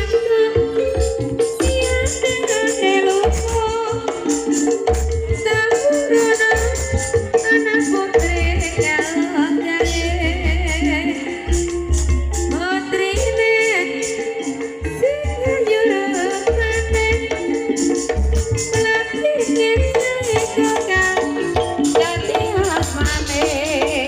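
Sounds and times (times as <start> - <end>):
person singing with wavering voice: 0.0 - 24.0
steady held tone: 0.0 - 24.0
low drum beats: 9.8 - 13.4, 19.8 - 24.0.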